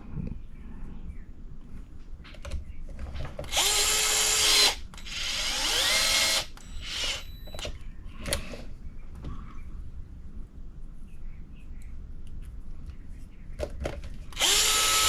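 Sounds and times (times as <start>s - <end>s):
cordless electric driver whirring: 3.5s - 7.3s, 14.4s - 15.0s.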